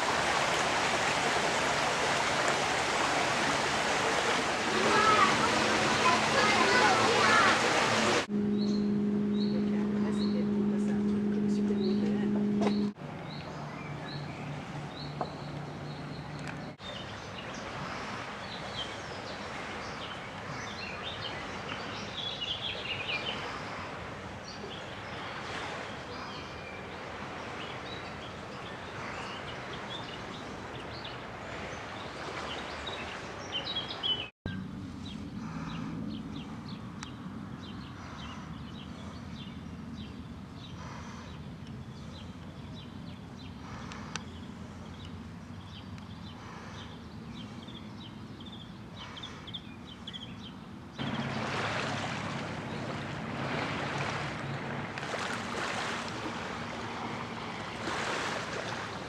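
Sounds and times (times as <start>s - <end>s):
outdoor background hiss: 0.0s - 10.1s
birds chirping: 0.0s - 59.0s
low steady hum: 3.6s - 16.4s.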